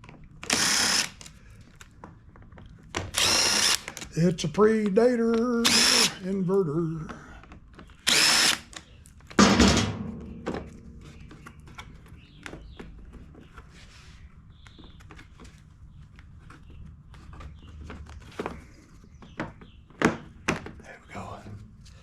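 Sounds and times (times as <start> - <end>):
power drill running: 0.4 - 1.2, 3.1 - 4.0, 5.6 - 6.2, 8.0 - 8.8
loud thunk: 9.4 - 10.9.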